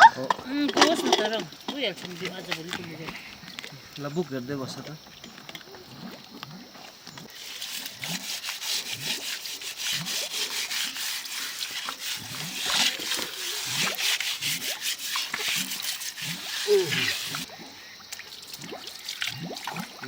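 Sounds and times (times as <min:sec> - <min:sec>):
rapid scraping strokes: 0:07.3 - 0:17.5.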